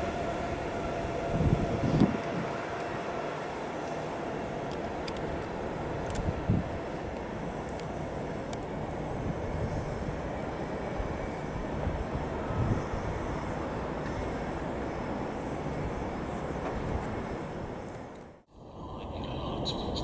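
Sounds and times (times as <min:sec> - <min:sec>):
train rumbling past: 0:00.0 - 0:20.0.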